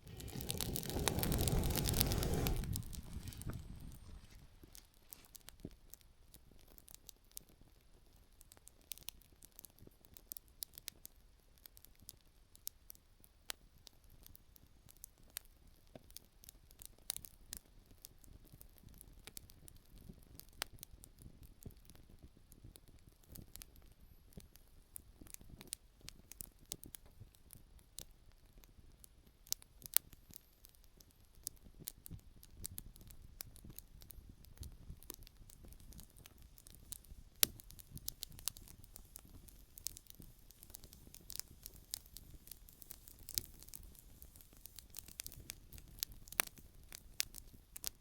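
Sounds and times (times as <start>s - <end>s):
faint low rush: 0.0s - 4.6s
campfire crackling: 0.0s - 11.0s, 25.2s - 48.0s
pops and snaps of burning firewood: 0.0s - 48.0s.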